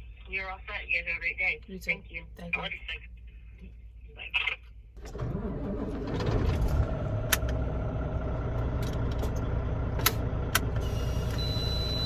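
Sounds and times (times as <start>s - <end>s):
diesel engine rumbling: 5.0s - 12.0s.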